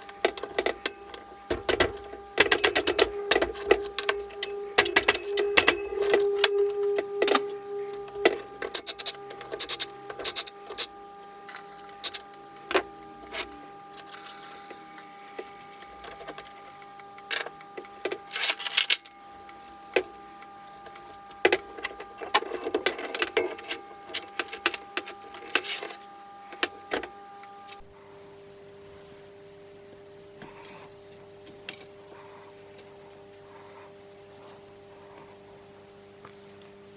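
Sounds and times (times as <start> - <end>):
faint steady hum: 0.0 - 36.9
metal parts and tools clinking: 0.2 - 10.9, 18.2 - 19.1, 21.8 - 26.1.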